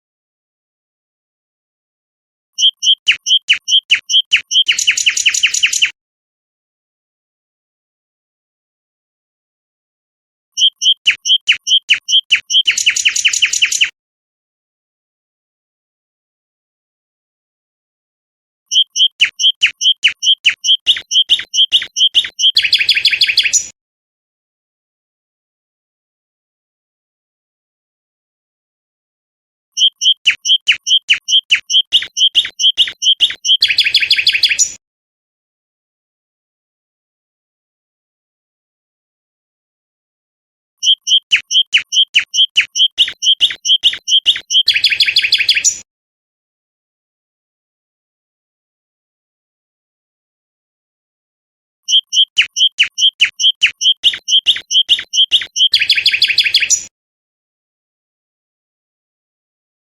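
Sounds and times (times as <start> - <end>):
songbird singing: 2.6 - 5.9, 10.6 - 13.9, 18.7 - 23.7, 29.8 - 34.8, 40.8 - 45.8, 51.9 - 56.9.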